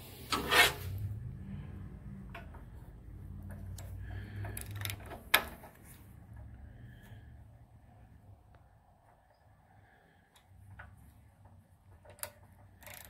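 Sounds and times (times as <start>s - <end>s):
ratchet wrench clicking: 12.1s - 13.0s.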